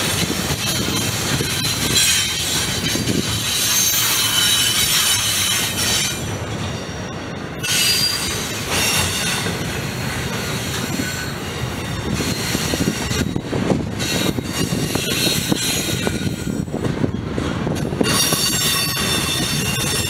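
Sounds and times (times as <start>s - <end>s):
train wheels rumbling on rails: 0.0s - 20.0s
high-pitched wheel squeal: 0.5s - 7.0s, 7.6s - 9.5s, 18.0s - 20.0s.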